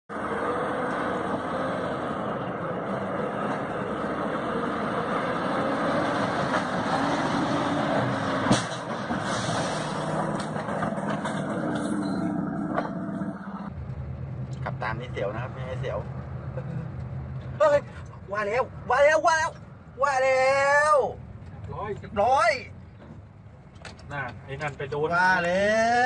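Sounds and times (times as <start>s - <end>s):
sharp crack: 8.1s - 11.8s.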